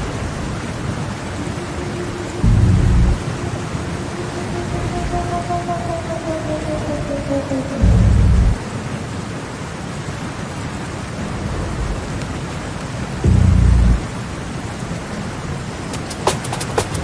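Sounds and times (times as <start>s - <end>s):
rain-like noise wash: 0.0s - 17.0s
falling synth tone: 1.1s - 9.0s, 13.3s - 14.1s
deep booms: 2.4s - 3.2s, 7.8s - 8.6s, 13.2s - 14.1s.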